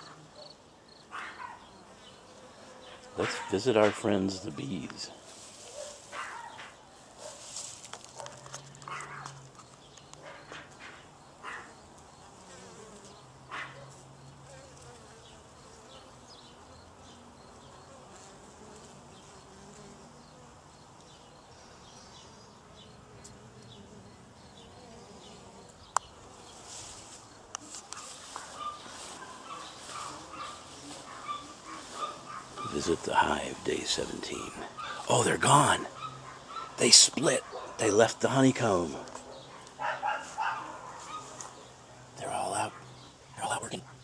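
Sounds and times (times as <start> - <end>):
bees buzzing: 0.0 - 7.9, 8.5 - 43.6
rustling: 4.9 - 9.8, 26.2 - 33.2.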